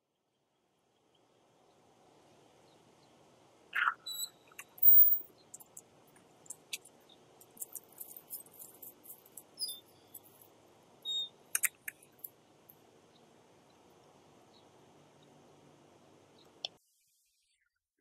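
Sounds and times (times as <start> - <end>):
small birds chirping: 2.5 - 15.6
faint clicks: 11.5 - 12.8.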